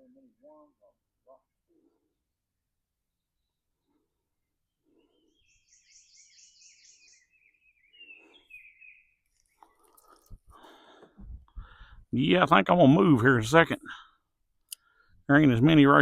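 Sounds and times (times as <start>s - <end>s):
faint songbird singing: 0.0s - 10.4s.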